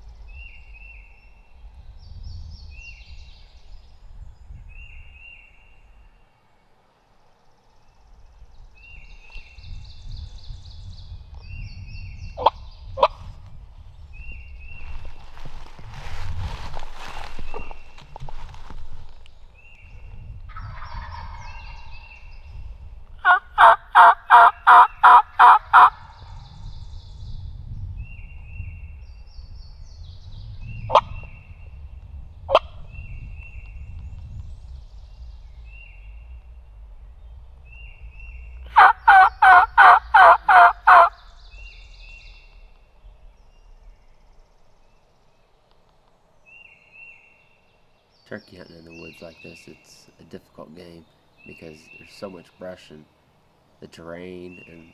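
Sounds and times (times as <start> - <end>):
turkey yelps: 23.2 - 26.0, 38.8 - 41.2.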